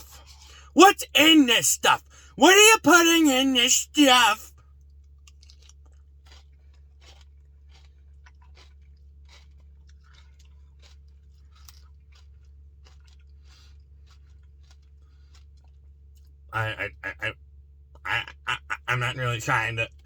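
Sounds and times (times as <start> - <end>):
faint chewing and crunching: 2.9 - 17.3
mouth clicks: 16.6 - 17.4, 18.1 - 19.9.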